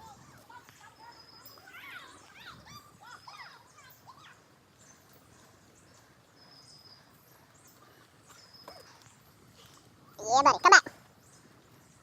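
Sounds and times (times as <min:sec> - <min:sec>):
bird chirps: 0:00.8 - 0:09.3.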